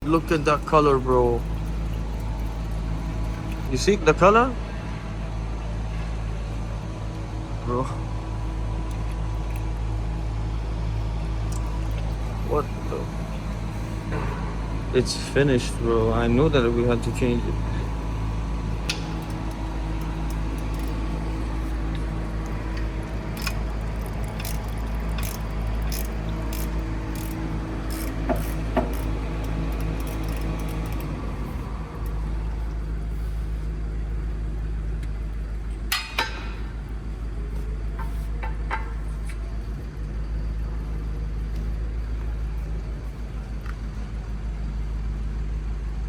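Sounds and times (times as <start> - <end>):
machinery humming: 0.0 - 46.0
droning tone: 4.5 - 46.0
metallic clicks and clinks: 17.0 - 32.2.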